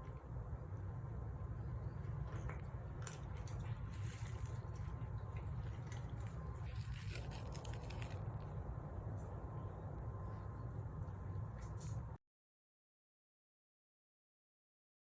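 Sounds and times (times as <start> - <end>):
steady low hum: 0.0 - 12.2
cat chewing food: 2.0 - 8.6.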